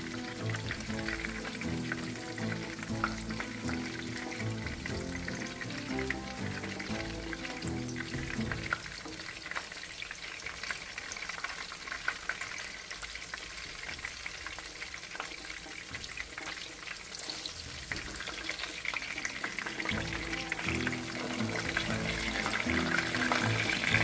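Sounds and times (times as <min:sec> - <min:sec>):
background music: 0:00.0 - 0:09.3, 0:19.6 - 0:24.0
food sizzling in oil: 0:00.0 - 0:24.0.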